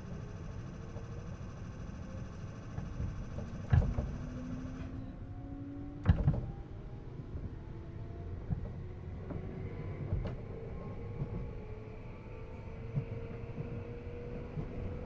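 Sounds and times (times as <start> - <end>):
motor and gear whine: 0.0 - 6.8
train wheels rumbling on track: 6.0 - 15.0.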